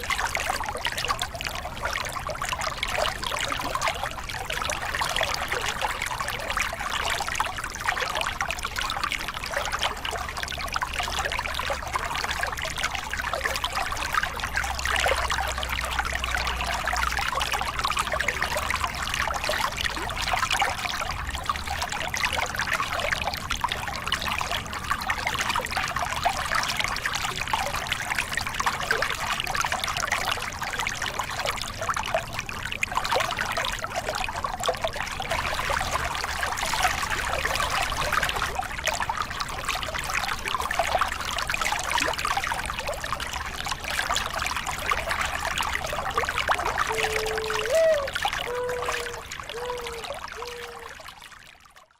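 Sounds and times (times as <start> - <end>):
water splashing over rocks: 0.0 - 51.9.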